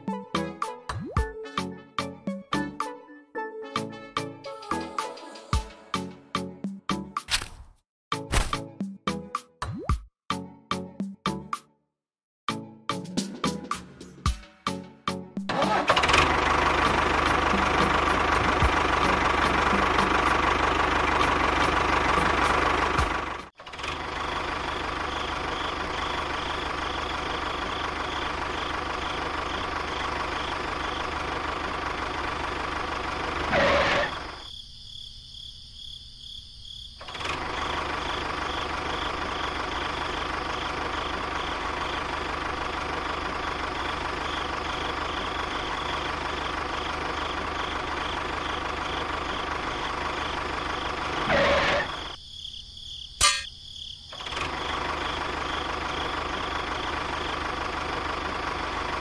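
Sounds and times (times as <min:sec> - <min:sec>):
tractor engine chugging: 0:15.5 - 0:34.4, 0:37.0 - 0:52.2, 0:54.2 - 0:59.0.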